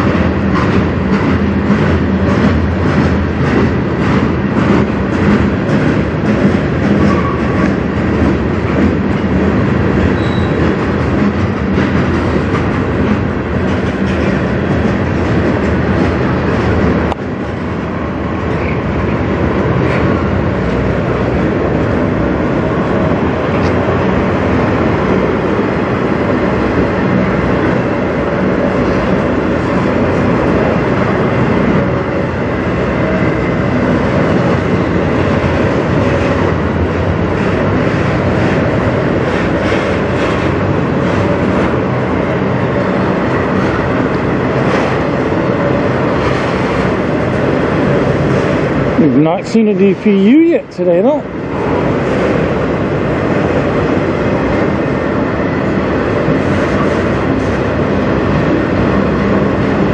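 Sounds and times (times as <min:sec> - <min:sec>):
wheels clickety-clack: 0:00.0 - 0:17.7, 0:32.9 - 0:50.3
train wheels rumbling on rail: 0:00.0 - 0:59.9.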